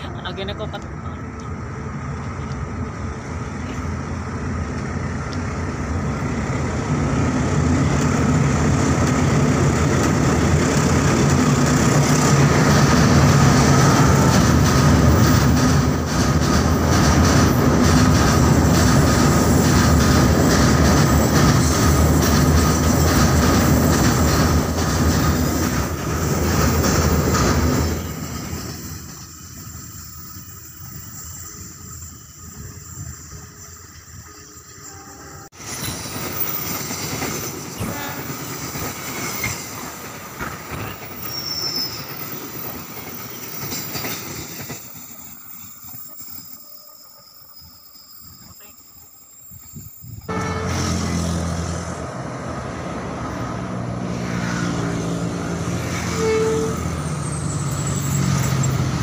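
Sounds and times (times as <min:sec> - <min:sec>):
freight train rumble on bridge: 0:00.0 - 0:59.0
wheels clattering over rails: 0:07.6 - 0:32.4.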